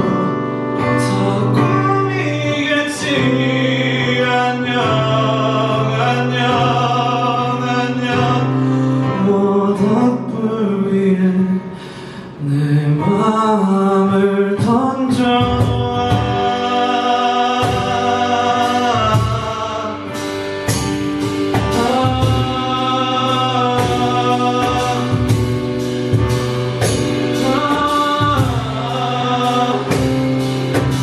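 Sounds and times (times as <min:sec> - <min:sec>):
wordless group singing: 0:01.7 - 0:08.6, 0:15.2 - 0:31.0
drum hits: 0:15.4 - 0:31.0.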